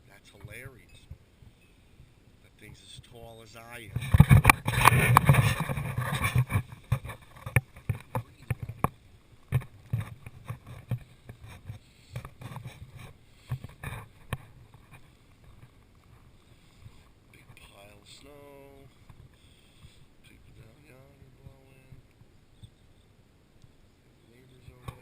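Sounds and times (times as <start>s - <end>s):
wind buffeting microphone: 3.8s - 8.9s.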